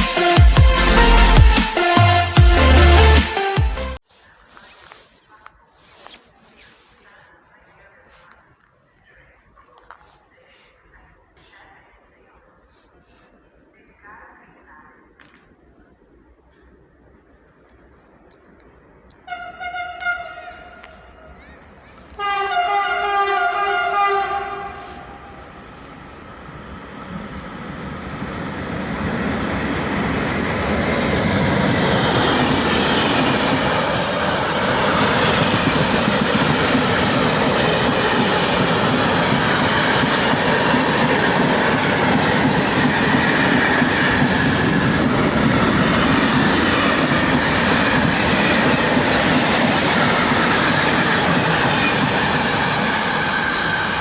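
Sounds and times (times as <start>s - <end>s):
freight train rolling past: 0.0s - 4.0s, 19.1s - 54.0s
locomotive horn: 19.2s - 21.4s, 22.1s - 26.2s.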